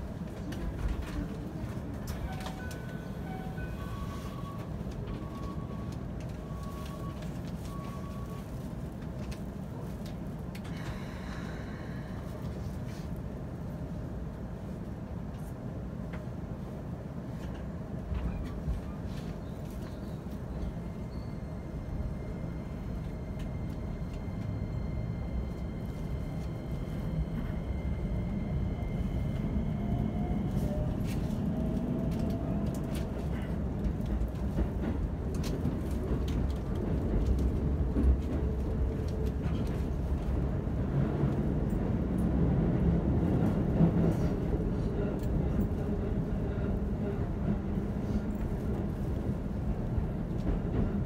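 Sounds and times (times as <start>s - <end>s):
train wheels rumbling on track: 0.0s - 51.0s.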